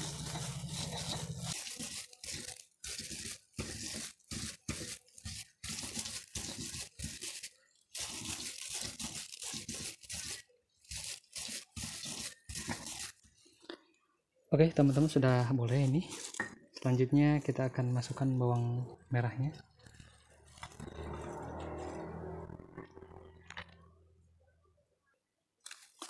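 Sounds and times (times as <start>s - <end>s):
stone pestle grinding in mortar: 0.0s - 13.3s, 19.4s - 23.3s.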